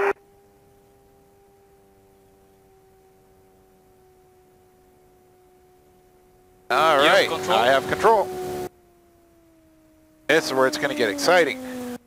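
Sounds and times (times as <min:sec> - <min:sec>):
faint two-tone hum: 0:00.0 - 0:12.0.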